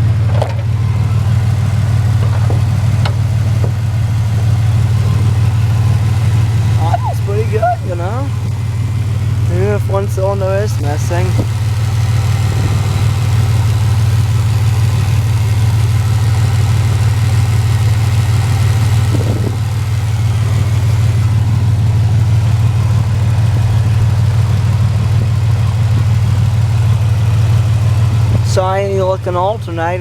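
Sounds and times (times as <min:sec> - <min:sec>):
car engine idling through leaky muffler: 0:00.0 - 0:30.0.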